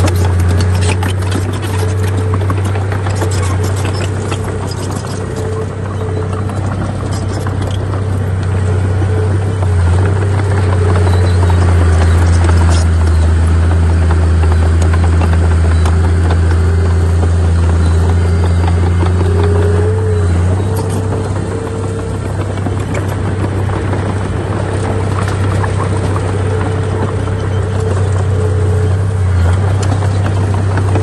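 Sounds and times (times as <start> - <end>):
machinery whine rising in pitch: 0.0 - 29.8
heavy diesel engine droning: 0.0 - 31.0.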